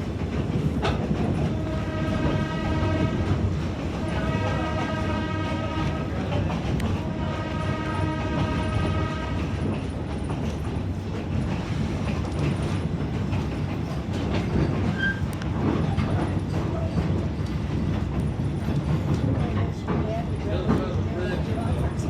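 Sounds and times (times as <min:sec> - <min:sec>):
train rumbling along track: 0:00.0 - 0:22.0
train horn blast: 0:01.5 - 0:06.2, 0:06.8 - 0:09.7.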